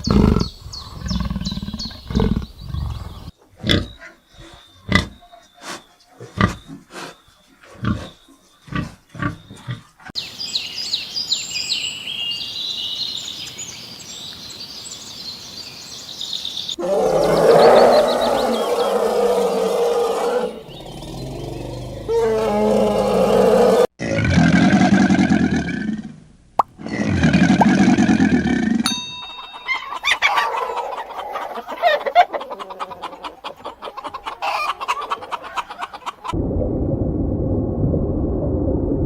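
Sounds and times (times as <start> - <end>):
high twittering: 28.9 - 31.7.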